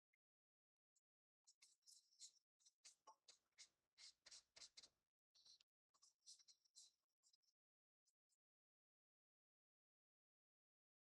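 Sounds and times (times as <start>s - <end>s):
paintbrush scratchy strokes: 1.5s - 7.4s.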